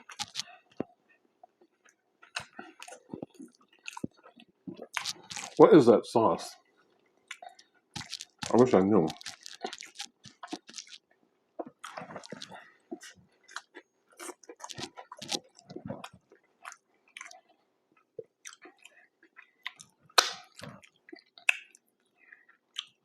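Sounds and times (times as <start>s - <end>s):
small crunches: 0.0s - 0.9s, 4.8s - 5.6s, 7.3s - 11.0s, 11.6s - 17.4s
person chewing food: 0.0s - 5.7s, 6.6s - 23.0s.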